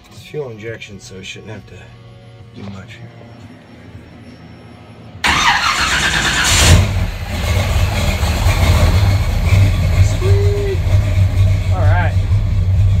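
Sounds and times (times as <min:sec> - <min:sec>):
engine running with low rumble: 0:00.0 - 0:13.0
starter motor cranking: 0:05.2 - 0:09.3.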